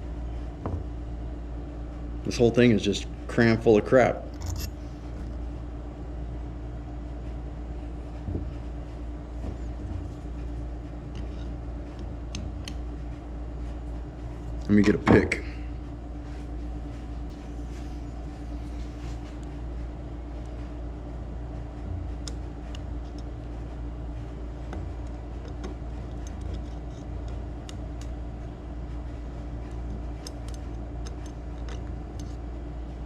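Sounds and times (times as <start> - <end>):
steady low hum: 0.0 - 33.0
metal pick scraping carburetor: 4.4 - 4.8.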